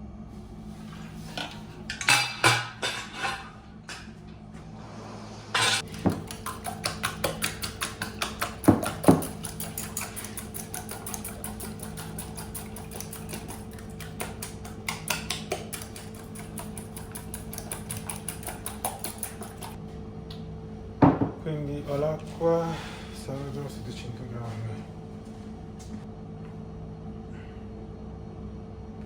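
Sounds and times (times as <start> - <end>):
machine hum: 0.0 - 29.0
rapid clicking and clatter: 5.8 - 19.8.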